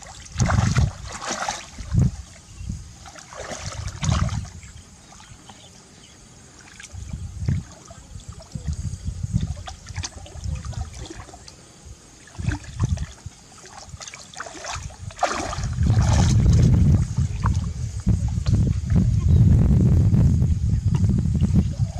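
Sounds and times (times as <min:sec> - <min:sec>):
shallow water splashing: 0:00.0 - 0:05.7, 0:06.3 - 0:17.8
low sloshing rumbles: 0:00.0 - 0:21.9.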